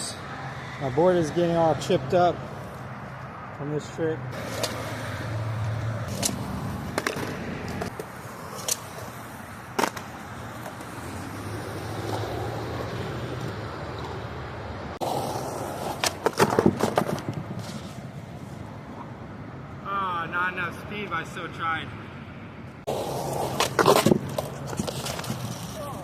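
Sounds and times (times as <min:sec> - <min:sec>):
skateboard wheels rolling on concrete: 0:00.0 - 0:19.8, 0:22.7 - 0:26.0
skateboard clacks: 0:06.1 - 0:09.1, 0:09.7 - 0:14.2, 0:15.0 - 0:18.0, 0:22.9 - 0:26.0
skateboard clattering impacts: 0:06.1 - 0:09.1, 0:09.7 - 0:11.0, 0:15.0 - 0:18.0, 0:22.9 - 0:26.0.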